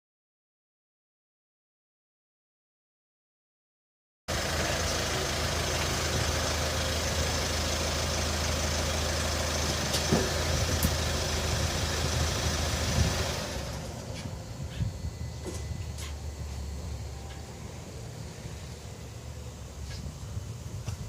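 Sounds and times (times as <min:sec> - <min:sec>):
car engine idling: 0:04.3 - 0:21.0.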